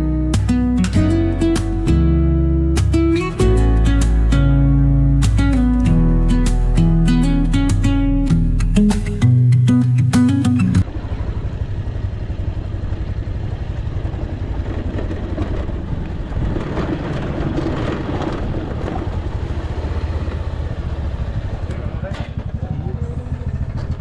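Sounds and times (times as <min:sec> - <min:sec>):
motorcycle engine running: 0:10.7 - 0:16.9, 0:17.8 - 0:24.0.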